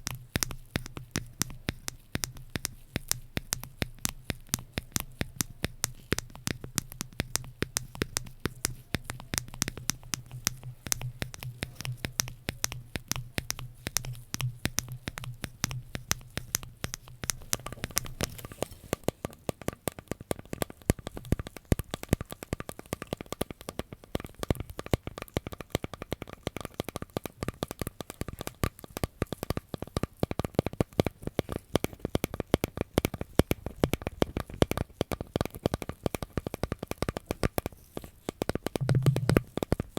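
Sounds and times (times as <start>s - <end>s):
crackling clicks of handled objects: 0.0s - 39.9s
low hum: 38.8s - 39.5s.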